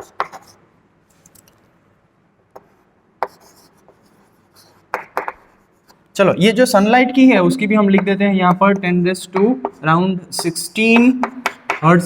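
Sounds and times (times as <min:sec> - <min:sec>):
faint writing strokes: 0:00.0 - 0:01.3, 0:02.5 - 0:06.1
sharp taps on a board: 0:10.4 - 0:11.8.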